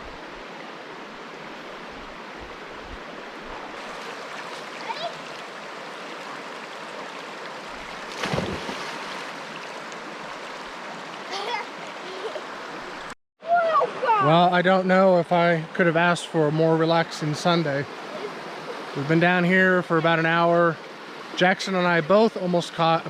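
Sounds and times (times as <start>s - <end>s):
river water rushing over rocks: 0.0s - 13.1s.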